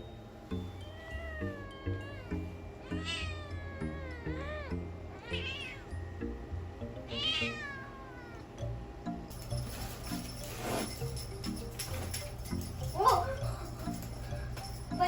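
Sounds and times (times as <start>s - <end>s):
cheerful background music: 0.0s - 15.0s
cat meowing: 0.9s - 5.9s, 7.1s - 8.5s.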